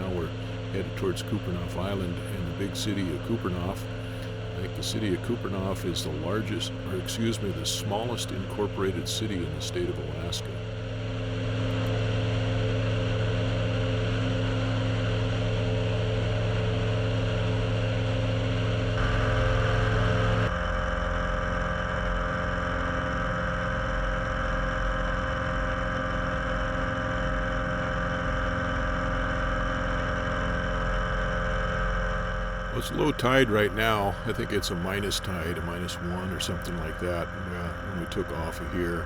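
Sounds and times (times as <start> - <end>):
airplane engine and propeller droning: 0.0 - 39.0.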